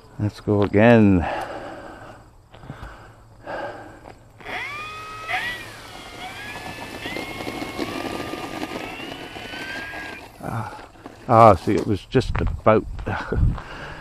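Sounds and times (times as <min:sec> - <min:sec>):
model plane electric motor whine: 0:04.4 - 0:11.7.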